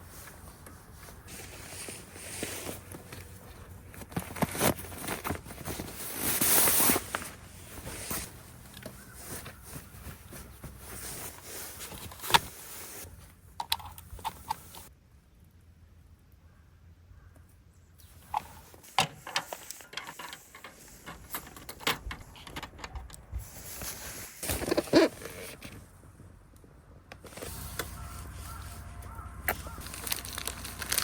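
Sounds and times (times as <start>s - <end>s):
rustling and scraping: 0.0s - 14.9s, 18.0s - 26.0s, 27.2s - 31.0s.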